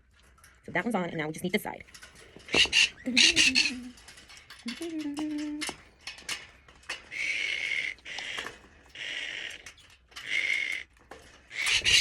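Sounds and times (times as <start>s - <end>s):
metal cage clicks and knocks: 1.8s - 7.2s
parrots screeching: 2.4s - 3.9s, 7.0s - 12.0s.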